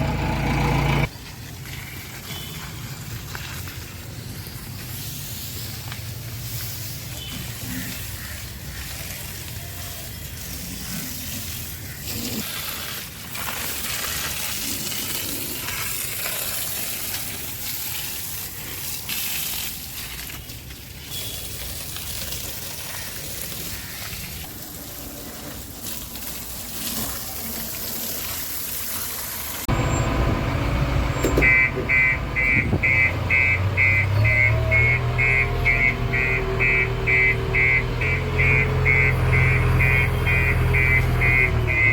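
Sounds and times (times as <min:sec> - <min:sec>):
diesel engine running: 0:00.0 - 0:01.1, 0:29.7 - 0:41.9
water spraying hiss: 0:01.2 - 0:31.0.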